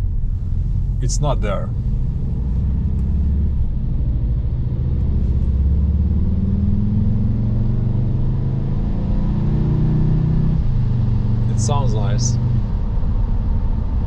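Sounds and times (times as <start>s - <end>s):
petrol engine running smoothly: 0.0s - 6.2s.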